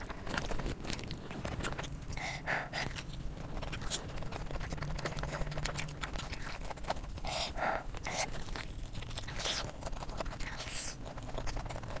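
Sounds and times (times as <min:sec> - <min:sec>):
wet chewing and lip-smacking: 0:00.0 - 0:12.0.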